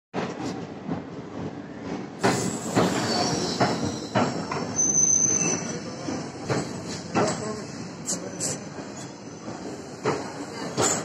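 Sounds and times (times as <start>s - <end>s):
train wheels clattering: 2.2s - 7.6s, 8.2s - 11.0s
high wheel squeal: 2.7s - 5.9s.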